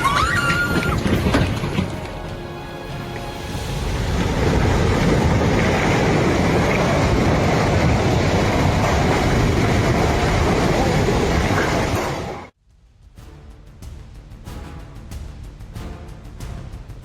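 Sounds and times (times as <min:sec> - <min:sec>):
floodwater torrent rushing: 0:00.0 - 0:12.5.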